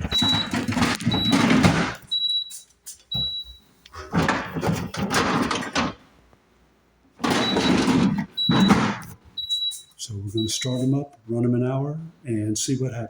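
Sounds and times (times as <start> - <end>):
plastic buckets sliding and knocking: 3.9 - 6.0.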